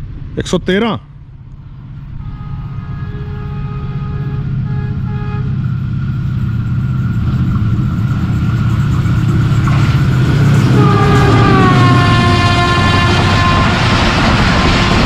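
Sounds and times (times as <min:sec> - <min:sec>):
locomotive engine and wheel rumble: 0:00.0 - 0:15.0
train horn blasts: 0:02.2 - 0:05.7, 0:10.5 - 0:15.0.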